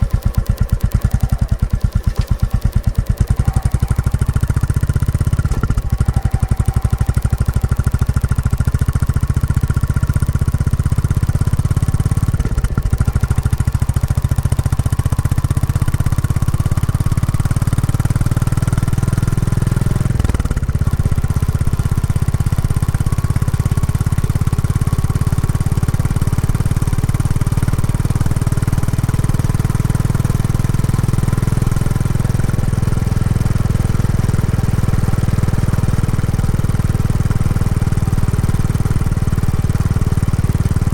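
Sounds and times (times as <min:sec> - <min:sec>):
motorcycle engine thumping: 0:00.0 - 0:17.6.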